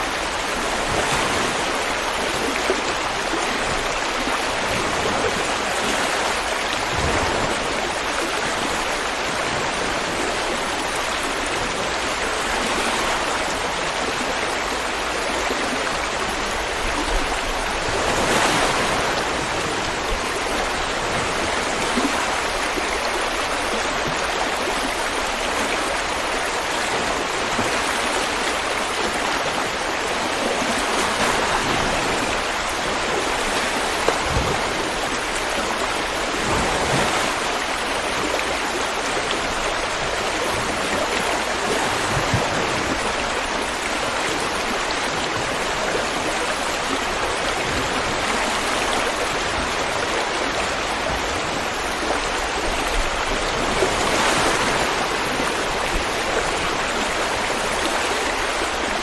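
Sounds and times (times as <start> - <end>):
river water rushing over stones: 0.0 - 59.0.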